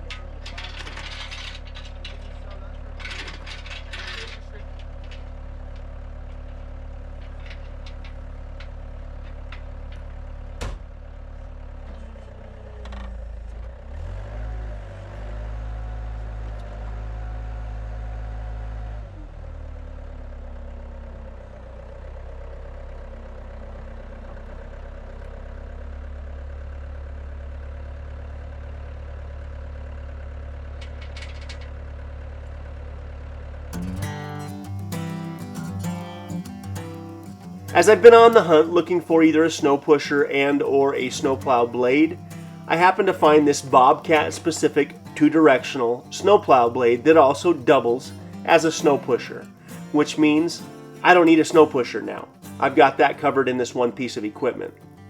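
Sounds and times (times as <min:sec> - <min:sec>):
skid steer engine revving: 0:00.0 - 0:55.0.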